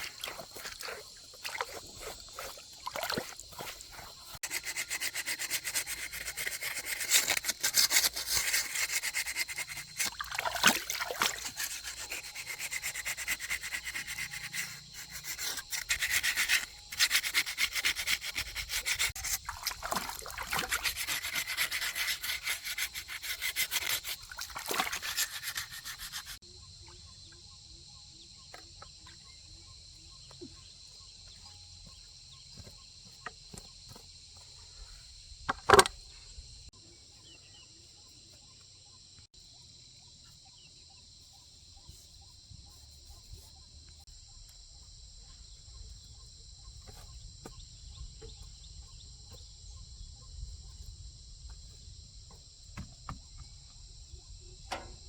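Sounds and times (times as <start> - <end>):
hand sanding strokes: 3.6 - 10.2, 11.3 - 19.4, 20.5 - 26.4.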